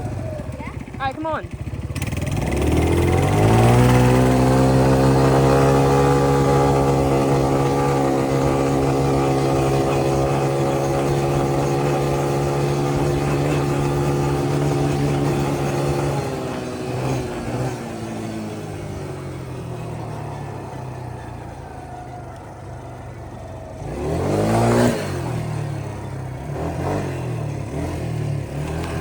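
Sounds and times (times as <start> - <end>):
quad bike engine revving: 0.0 - 29.0.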